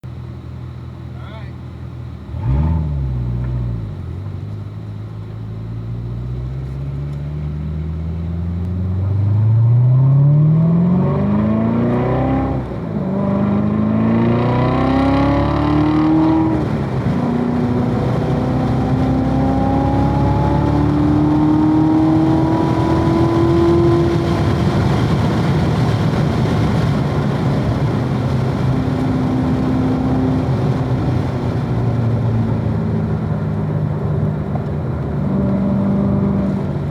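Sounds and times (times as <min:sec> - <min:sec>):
car engine accelerating hard: 0:00.6 - 0:36.9
loud engine rev: 0:02.2 - 0:04.1, 0:07.3 - 0:32.8, 0:35.0 - 0:36.9.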